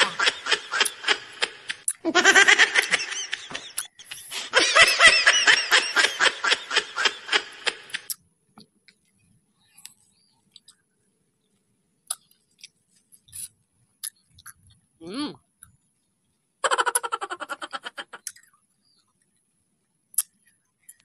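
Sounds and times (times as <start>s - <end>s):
man laughing: 0.0s - 1.3s, 2.1s - 7.4s.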